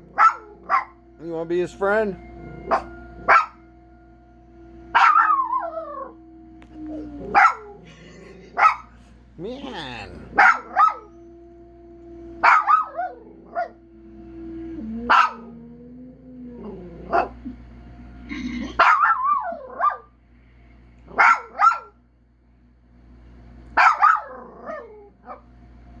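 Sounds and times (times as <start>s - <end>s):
dog barking: 0.0s - 1.0s, 2.7s - 3.6s, 5.0s - 5.6s, 7.3s - 9.0s, 10.3s - 11.1s, 12.4s - 13.7s, 15.1s - 15.5s, 18.8s - 20.1s, 21.1s - 22.0s, 23.8s - 25.4s
dog howling: 0.0s - 20.1s, 23.8s - 25.4s.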